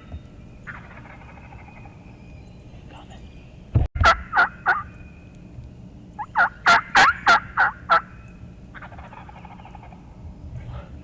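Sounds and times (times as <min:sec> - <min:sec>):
turkey yelping: 0:04.0 - 0:05.0, 0:06.2 - 0:10.0.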